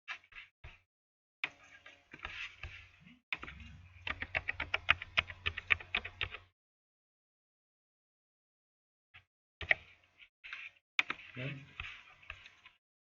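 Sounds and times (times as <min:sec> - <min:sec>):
typing on computer keyboard: 0:03.4 - 0:06.5.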